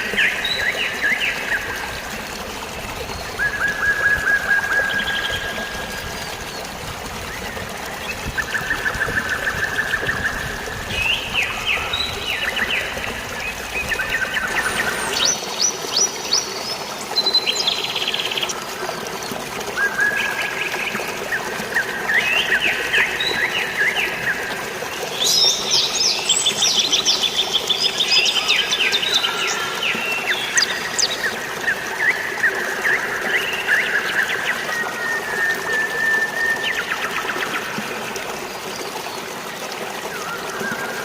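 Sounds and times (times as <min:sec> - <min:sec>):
flowing water splashing: 0:00.0 - 0:41.0
birds chirping and trilling: 0:07.3 - 0:18.5, 0:19.8 - 0:37.6.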